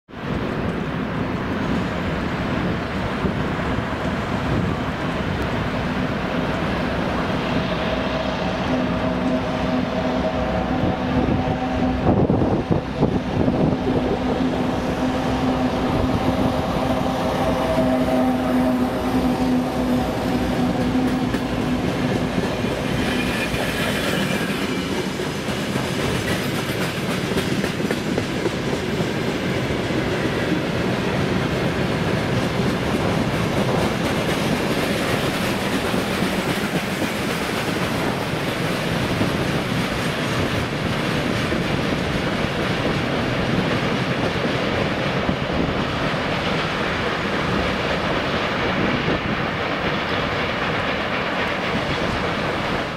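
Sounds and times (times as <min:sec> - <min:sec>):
diesel engine drone: 0:04.5 - 0:22.4.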